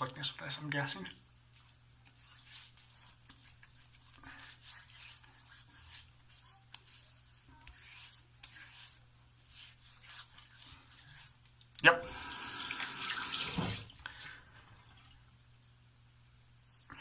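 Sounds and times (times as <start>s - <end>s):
fingertips rubbing wet skin: 1.5s - 11.6s.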